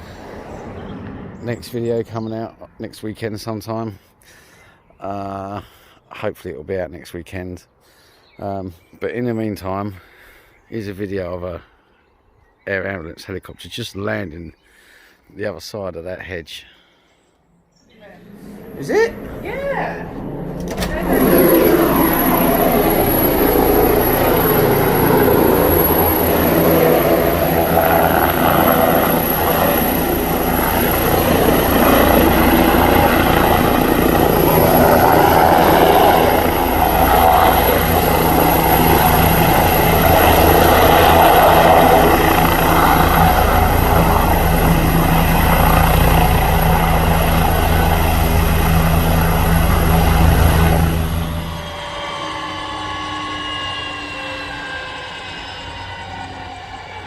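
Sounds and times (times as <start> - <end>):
turbine whine: 0.0 - 2.0, 18.0 - 57.0
helicopter rotor thudding: 18.2 - 52.2.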